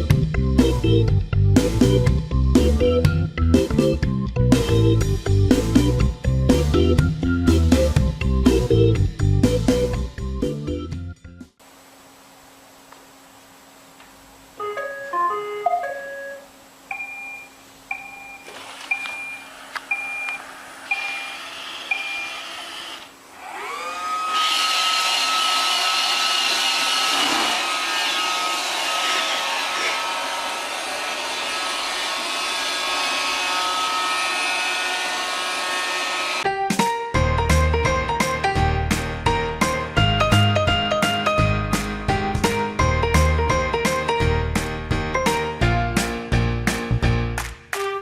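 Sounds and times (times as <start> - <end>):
paired beeps: 14.6 - 21.3
vacuum motor whirring: 18.4 - 36.4.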